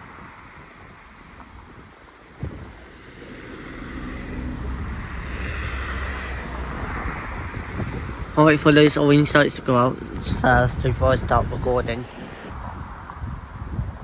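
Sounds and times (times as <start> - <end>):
diesel train engine rumbling: 0.0 - 14.0
wind buffeting microphone: 0.0 - 14.0.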